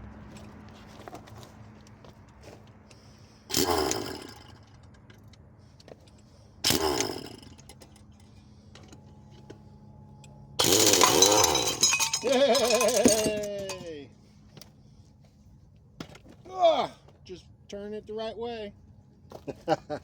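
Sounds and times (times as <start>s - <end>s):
starter cranking diesel engine: 6.6s - 7.9s.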